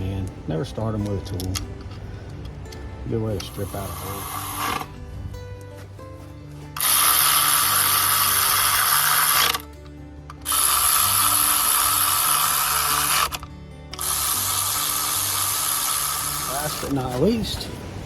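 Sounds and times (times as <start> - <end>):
background music: 0.0 - 18.0
power tool driving bolts: 3.4 - 4.9, 6.8 - 17.1.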